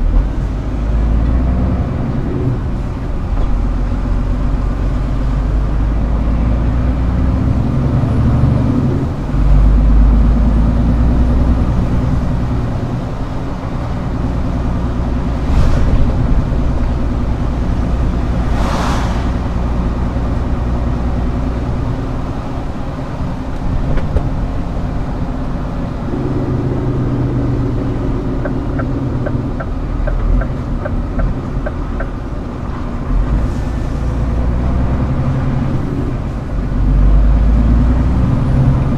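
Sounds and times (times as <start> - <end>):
truck diesel engine running: 0.0 - 38.9
short air hisses: 18.4 - 19.5.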